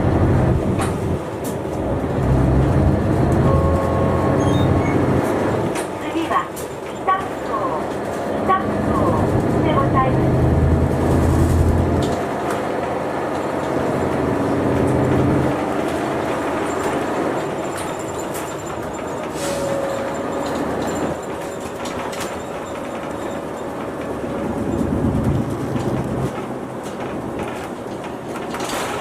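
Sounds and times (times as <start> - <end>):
bus engine low hum: 0.0 - 29.0
road noise: 0.0 - 29.0.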